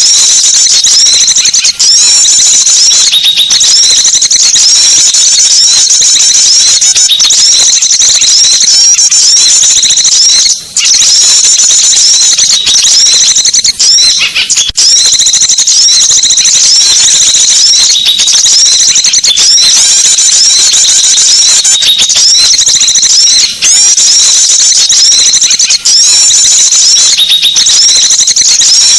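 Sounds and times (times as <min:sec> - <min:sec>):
songbirds chirping and twittering: 0:12.2 - 0:14.7.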